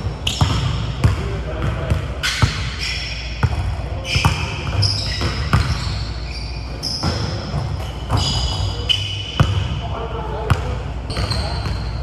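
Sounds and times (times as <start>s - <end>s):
basketballs bouncing on wooden floor: 0.0s - 2.8s, 3.4s - 6.0s, 7.0s - 8.8s, 9.4s - 9.8s
sneaker squeaks: 0.0s - 9.9s, 10.5s - 12.0s.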